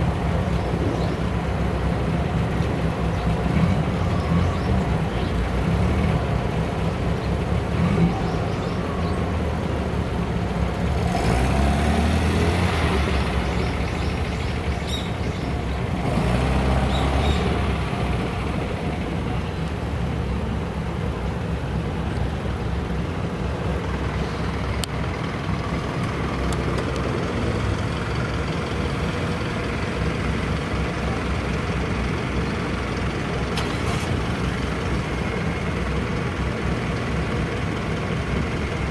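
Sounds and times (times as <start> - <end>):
car engines driving past: 0.0 - 38.9.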